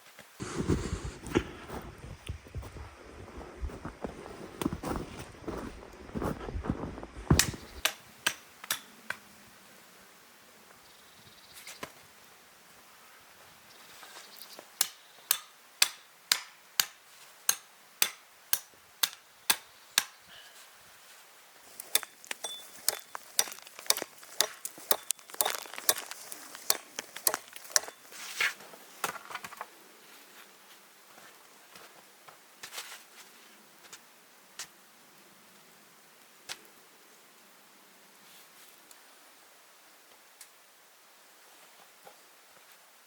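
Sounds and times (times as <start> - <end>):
scraping strikes: 21.8 - 28.4.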